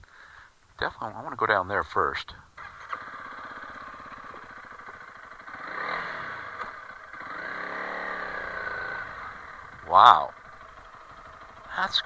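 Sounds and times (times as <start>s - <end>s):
motorcycle engine revving: 2.6s - 12.0s.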